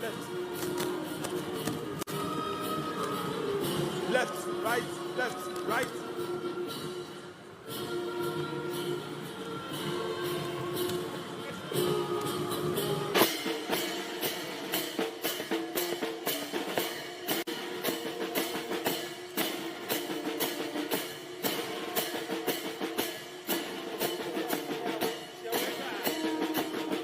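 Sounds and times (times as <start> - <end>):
military band playing a march: 0.0 - 27.0
bass and snare drum beat: 10.4 - 27.0.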